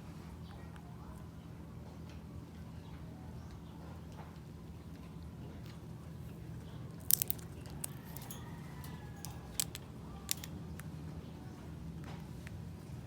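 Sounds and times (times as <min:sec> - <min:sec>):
parrot cracking seeds: 0:06.9 - 0:10.9.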